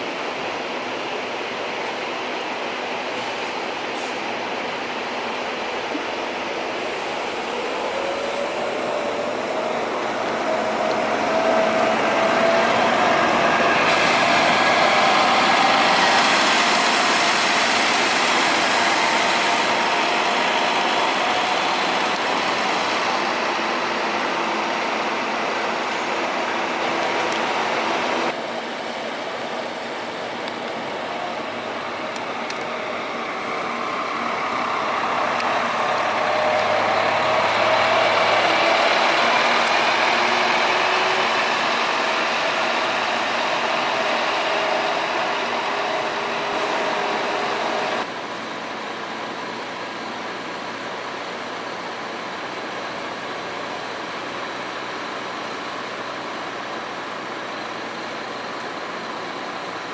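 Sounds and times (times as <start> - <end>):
bus engine running: 0.0 - 59.9.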